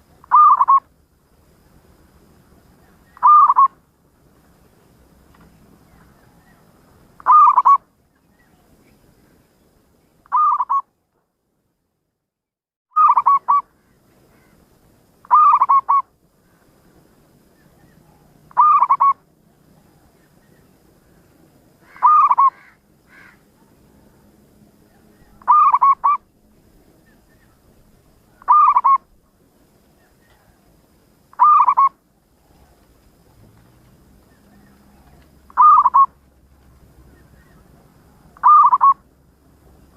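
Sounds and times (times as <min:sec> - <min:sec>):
dove cooing: 0:00.0 - 0:00.8, 0:03.1 - 0:03.7, 0:07.2 - 0:07.8, 0:13.0 - 0:13.6, 0:15.3 - 0:16.1, 0:18.0 - 0:19.2, 0:21.8 - 0:23.4, 0:24.9 - 0:26.3, 0:28.3 - 0:29.1, 0:31.3 - 0:32.9, 0:34.3 - 0:36.2, 0:37.2 - 0:39.1.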